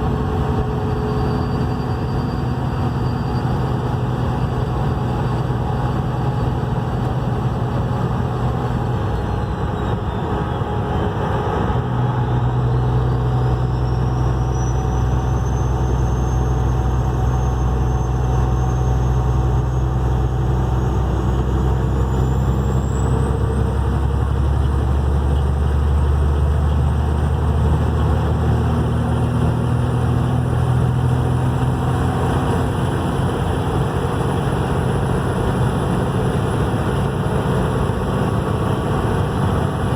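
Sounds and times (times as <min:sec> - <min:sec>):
engine running: 0:00.0 - 0:39.9
high turbo whistle: 0:09.1 - 0:23.3.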